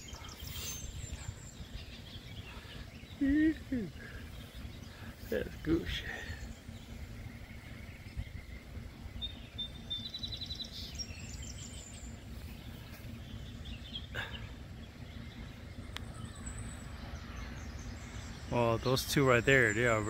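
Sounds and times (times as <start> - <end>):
bird trill: 0.0 - 20.0
steady low rumble: 0.0 - 20.0
thin high bird chirps: 0.0 - 20.0.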